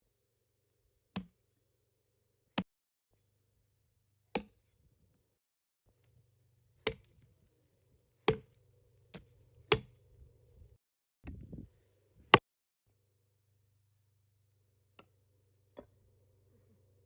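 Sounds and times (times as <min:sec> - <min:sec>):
wood being chopped: 0:04.3 - 0:04.6, 0:06.8 - 0:07.2, 0:08.2 - 0:10.0.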